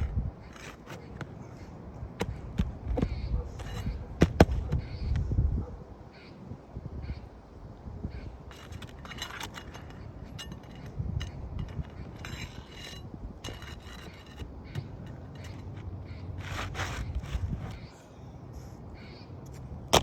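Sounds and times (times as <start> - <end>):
tool clicks and scrapes: 0.0 - 1.3, 8.5 - 17.8
squeaky metal-on-metal rubs: 8.5 - 17.9.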